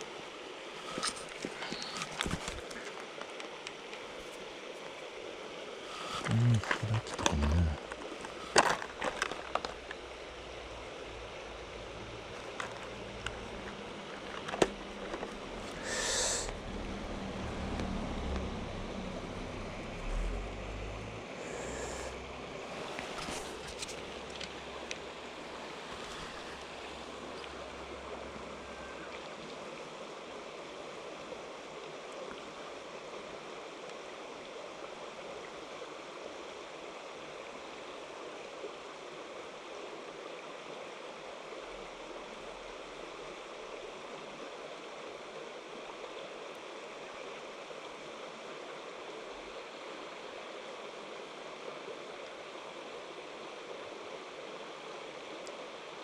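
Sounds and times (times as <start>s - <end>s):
stream water running over rocks: 0.0s - 56.0s
low rumble: 16.5s - 22.4s.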